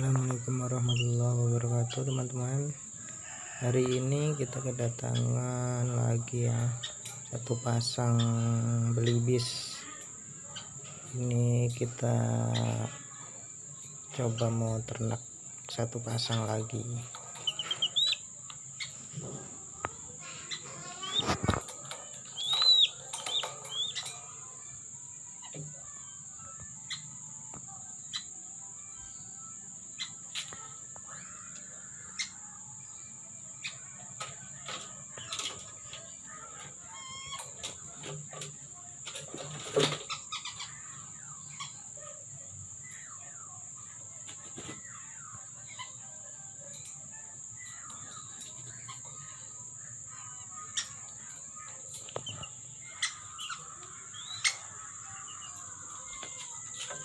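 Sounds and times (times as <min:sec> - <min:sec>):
crickets droning: 0:00.0 - 0:57.0.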